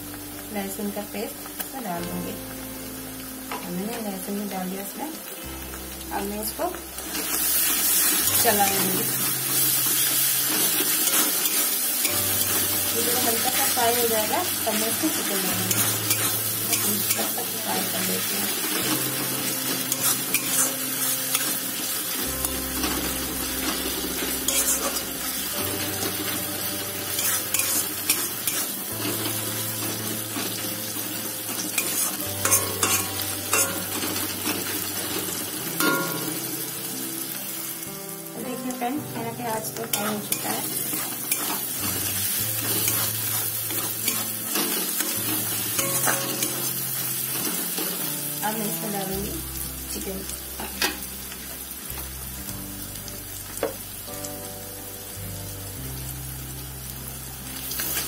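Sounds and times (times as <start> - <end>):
onions sizzling in hot oil: 0.0 - 58.0
spatula scraping pan: 31.8 - 33.9.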